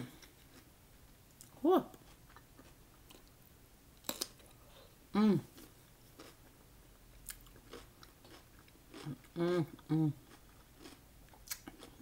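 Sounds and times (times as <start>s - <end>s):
person humming: 5.1s - 5.6s, 9.4s - 10.2s
chewing with mouth clicks: 7.2s - 12.0s.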